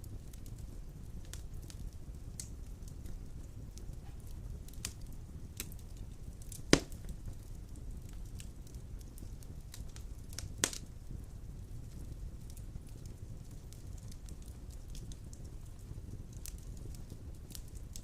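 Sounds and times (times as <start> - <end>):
wood fire burning in fireplace: 0.0 - 18.0
loud sharp fire pop: 6.7 - 7.0.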